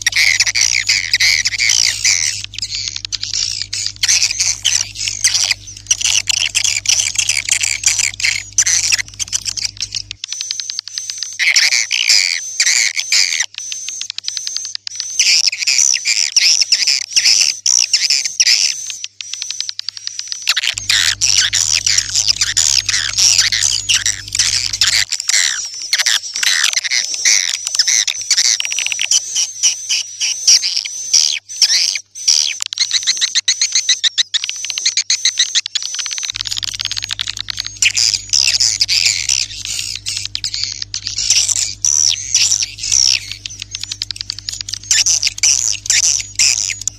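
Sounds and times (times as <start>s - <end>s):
low hum: 0.0s - 10.2s, 20.7s - 25.0s, 36.3s - 46.9s
swiftlets twittering: 0.0s - 10.2s, 20.5s - 25.7s, 36.4s - 46.9s.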